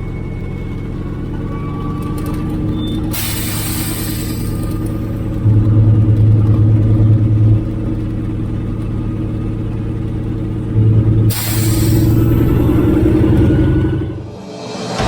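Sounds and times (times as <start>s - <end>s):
radial aircraft engine running: 0.0s - 15.0s
short hiss: 3.1s - 4.9s, 11.3s - 12.2s.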